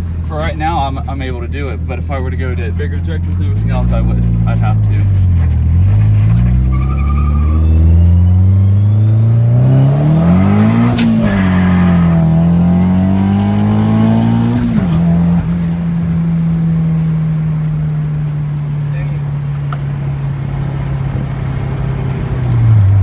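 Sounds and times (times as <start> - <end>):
turbocharged engine revving: 0.0 - 23.0
sharp click: 10.8 - 11.6.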